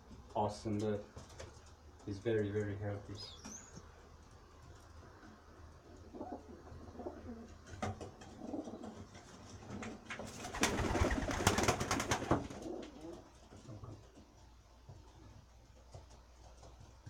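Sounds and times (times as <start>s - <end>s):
pigeons cooing: 5.8s - 14.1s.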